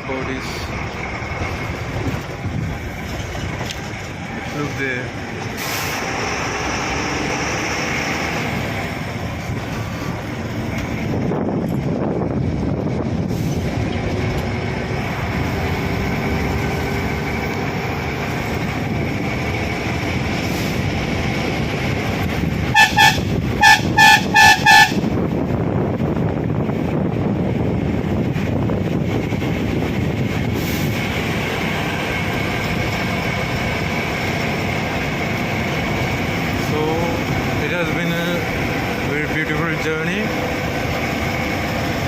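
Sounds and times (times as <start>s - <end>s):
bus engine and road noise: 0.0s - 42.0s
short bus horn toots: 22.7s - 25.2s.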